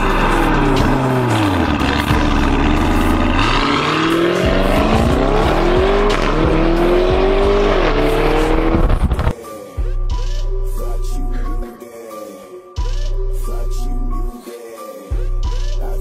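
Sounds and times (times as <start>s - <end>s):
car engine accelerating hard: 0.0s - 9.3s.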